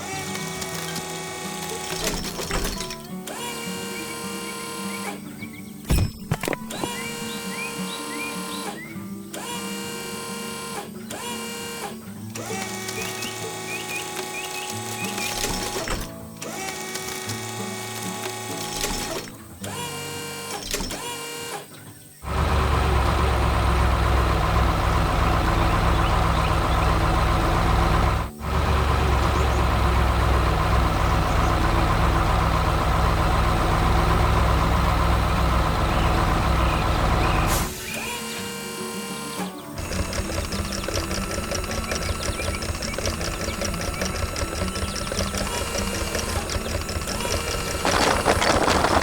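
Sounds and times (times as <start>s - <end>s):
heavy engine rumble: 22.2s - 49.0s.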